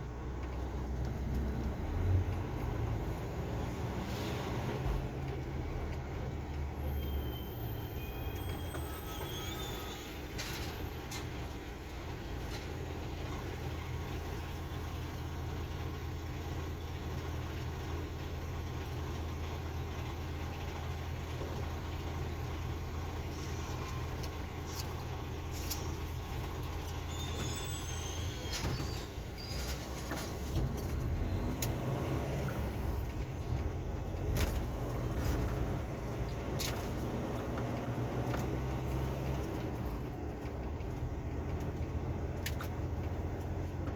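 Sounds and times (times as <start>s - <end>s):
road and cab noise: 0.0s - 43.9s
truck engine running: 0.0s - 43.9s
high squeaks: 6.8s - 11.4s, 23.3s - 33.1s.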